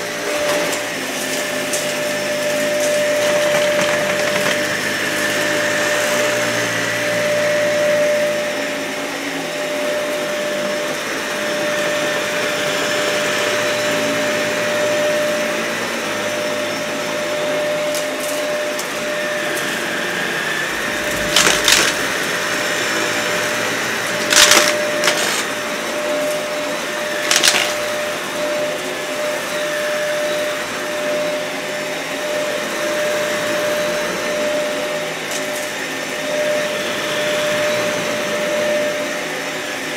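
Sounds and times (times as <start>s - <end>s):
vacuum cleaner running: 0.0s - 39.9s
grit crackling in vacuum: 20.6s - 23.3s.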